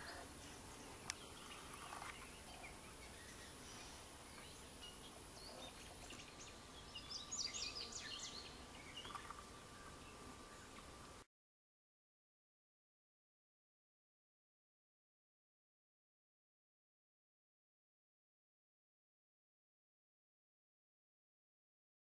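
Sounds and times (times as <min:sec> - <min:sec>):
small bird chirps: 0:00.9 - 0:10.8.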